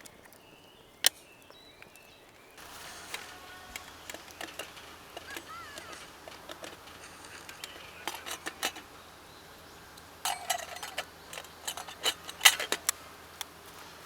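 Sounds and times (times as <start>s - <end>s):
small hard objects clicking: 0.0s - 13.9s
ringing clink: 2.6s - 13.0s.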